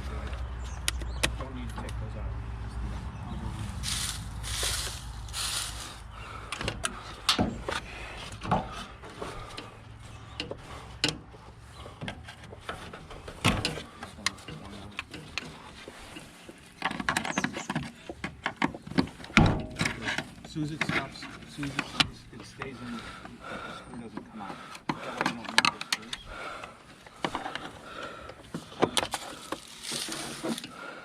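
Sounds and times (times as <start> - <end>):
hand tools clicking and rattling: 11.9 - 30.8.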